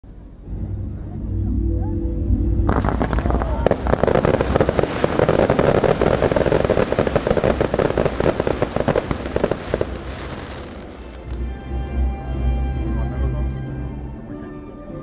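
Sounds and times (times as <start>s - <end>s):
loud firework burst: 2.7s - 11.4s
fireworks crackling and popping: 2.7s - 11.5s.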